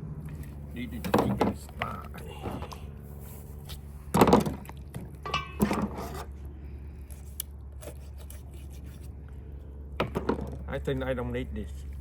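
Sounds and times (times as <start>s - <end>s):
knife scraping cuts: 7.1s - 9.2s.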